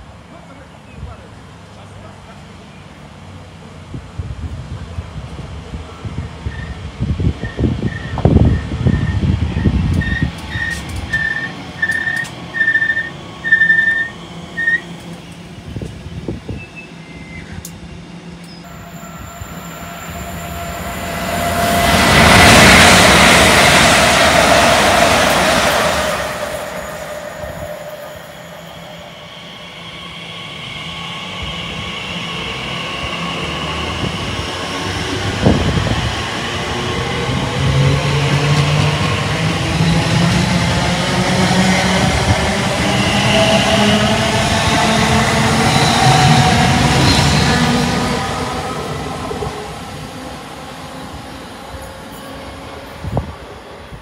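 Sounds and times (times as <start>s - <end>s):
approaching train hum: 0.0s - 54.0s
train passing at speed: 0.0s - 54.0s
short beeps: 18.7s - 22.2s.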